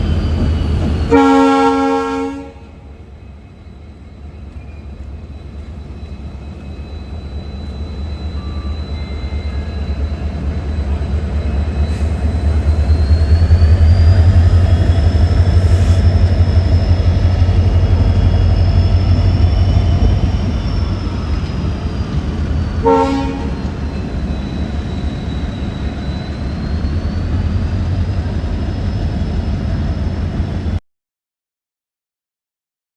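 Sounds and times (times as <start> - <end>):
diesel locomotive engine drone: 0.0 - 30.8
locomotive horn blast: 1.1 - 3.0, 22.8 - 24.1
thin high whine: 5.5 - 29.8.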